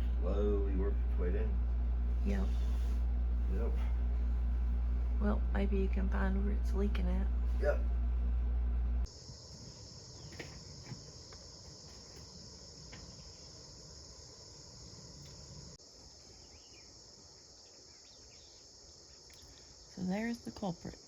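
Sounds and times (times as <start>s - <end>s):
low rumble: 0.0s - 9.1s
insects chorus: 9.1s - 21.0s.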